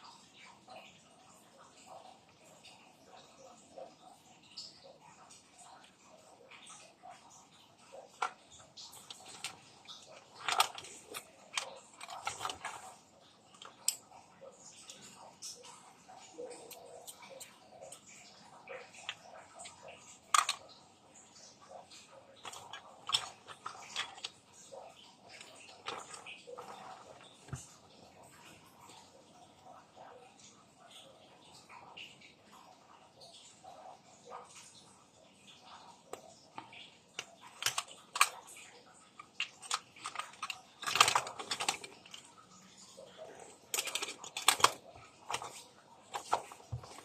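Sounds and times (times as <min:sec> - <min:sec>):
small clicks of objects handled: 0:07.9 - 0:20.8, 0:21.4 - 0:29.0, 0:35.6 - 0:47.0.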